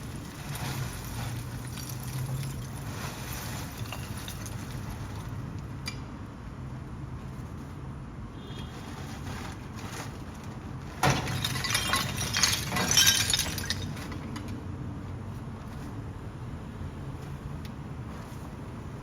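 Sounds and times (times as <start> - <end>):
clattering rattles and knocks: 8.8 - 14.6.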